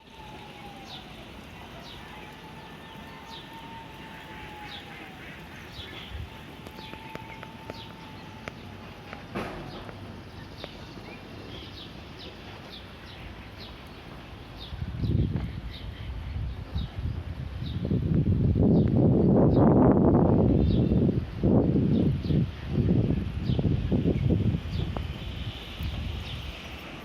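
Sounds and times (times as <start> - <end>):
bird chirping: 0.1 - 16.9
wind rushing: 14.6 - 26.7.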